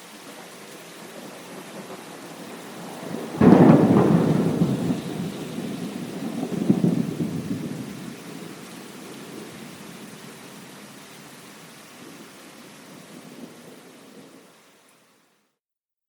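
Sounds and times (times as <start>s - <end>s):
steady rain: 0.0s - 15.5s
thunderclap rumbling: 1.0s - 10.7s.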